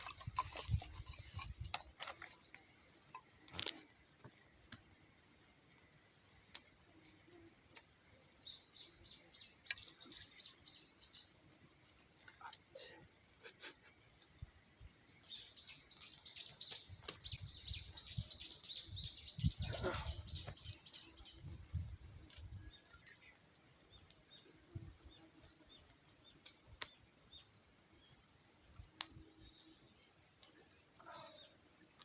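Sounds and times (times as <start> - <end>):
bird chirping: 8.4 - 11.4, 15.1 - 21.5
faint clicks: 11.6 - 14.6.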